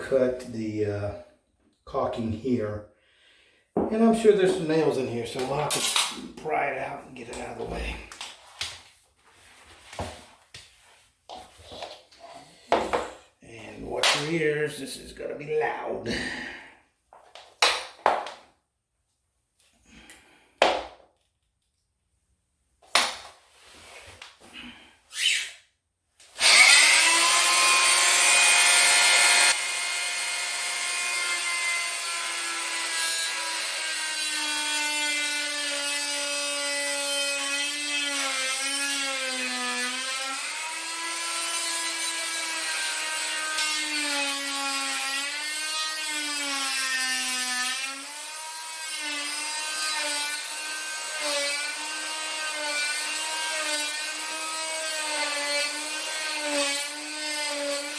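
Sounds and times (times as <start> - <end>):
power tool cutting wood: 26.3 - 57.9.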